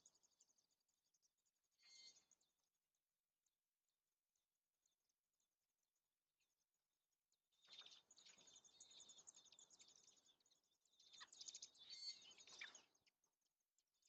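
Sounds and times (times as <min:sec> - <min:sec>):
birds chirping faintly: 0:00.0 - 0:02.7, 0:07.3 - 0:14.0.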